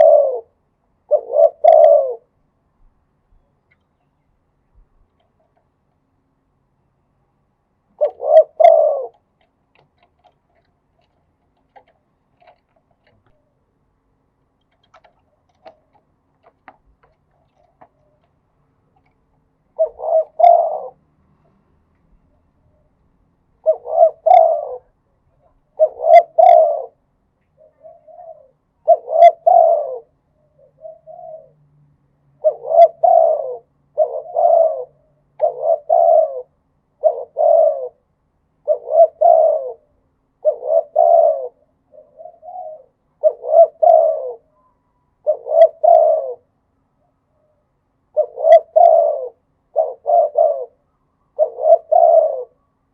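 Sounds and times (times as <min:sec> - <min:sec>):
dove cooing: 0:00.0 - 0:02.4, 0:07.9 - 0:13.6, 0:14.7 - 0:18.4, 0:19.0 - 0:21.6, 0:23.6 - 0:31.6, 0:32.4 - 0:52.7
faint clicks: 0:09.1 - 0:13.4, 0:14.5 - 0:19.4.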